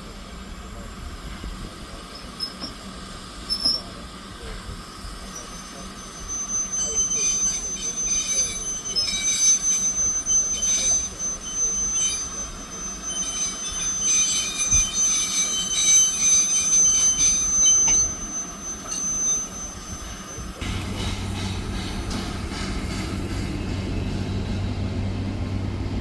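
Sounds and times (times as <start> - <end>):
train wheels squealing on rails: 0.0 - 26.0.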